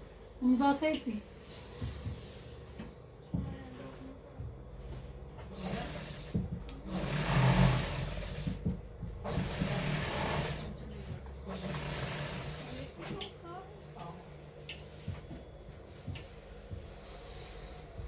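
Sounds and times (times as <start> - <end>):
sewing machine stitching: 5.4 - 13.2.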